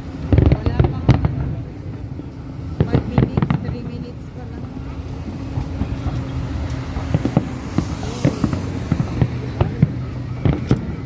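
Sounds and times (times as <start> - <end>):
continuous rumble: 0.0 - 11.0
fireworks bangs: 0.0 - 11.0.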